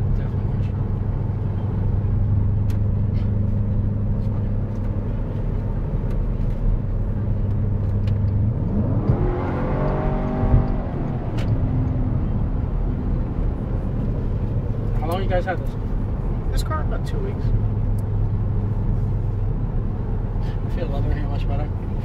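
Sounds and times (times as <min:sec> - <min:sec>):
car engine revving: 0:07.7 - 0:16.4.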